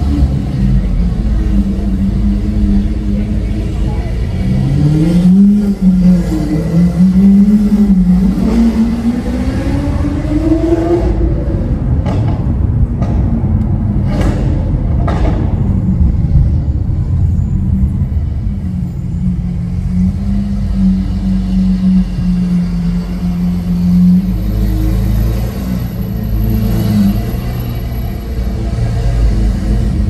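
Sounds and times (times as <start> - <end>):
sports car engine revving: 0.0 - 16.2.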